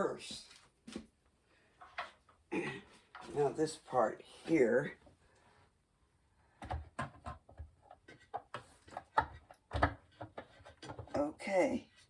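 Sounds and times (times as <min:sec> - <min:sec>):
plastic parts knocking and clicking: 0:06.6 - 0:12.0.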